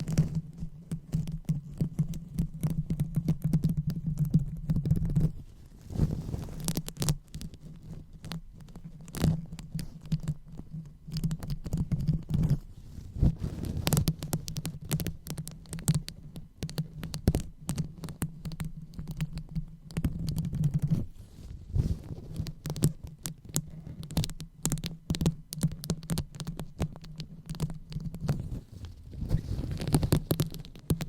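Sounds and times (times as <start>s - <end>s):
microphone rubbed and tapped: 0.0s - 31.0s.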